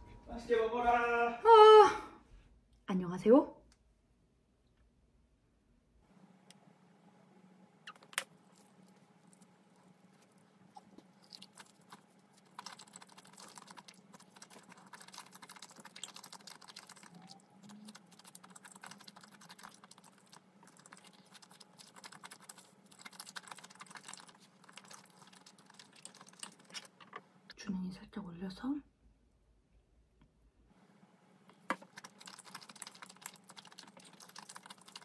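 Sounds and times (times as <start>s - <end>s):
chewing crispy fried food: 7.9s - 27.0s, 31.6s - 35.0s.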